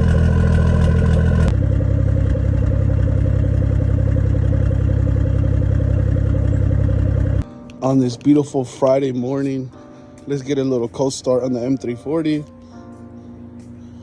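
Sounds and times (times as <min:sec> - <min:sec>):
car engine running: 0:00.0 - 0:07.4.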